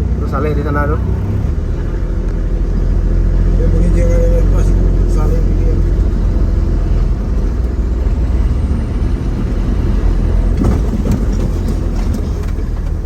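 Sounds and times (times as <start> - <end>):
vehicle engine and road rumble: 0.0 - 13.0
brief rattles and knocks: 10.5 - 13.0.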